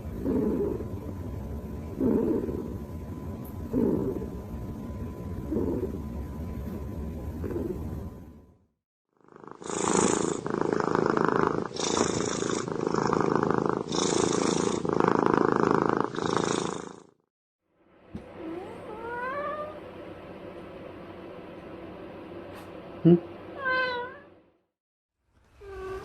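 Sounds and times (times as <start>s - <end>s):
cat purring: 0.0s - 8.3s, 9.2s - 17.2s
cat meowing: 23.6s - 24.3s.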